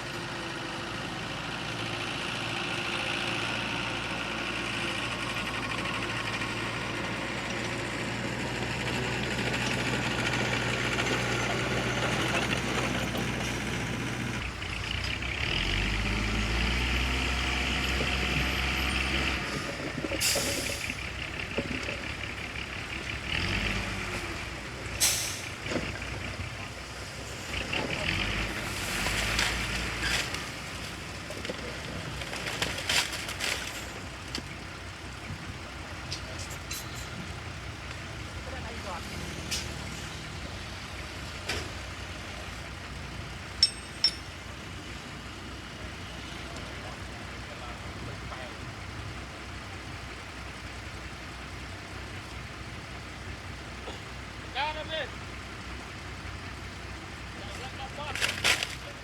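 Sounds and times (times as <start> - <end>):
heavy diesel engines running: 0.0 - 59.0
engine revving: 8.0 - 19.7, 22.6 - 24.7, 27.4 - 30.6
air brake hisses: 25.0 - 25.5.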